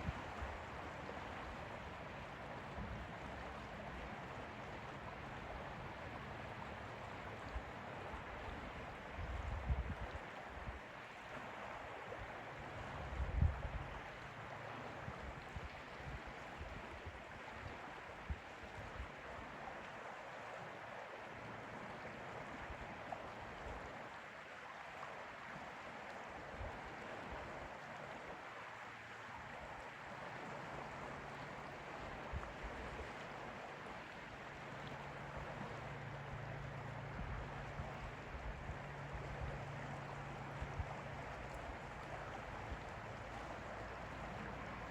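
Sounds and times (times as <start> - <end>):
lake water lapping: 0.0 - 44.9.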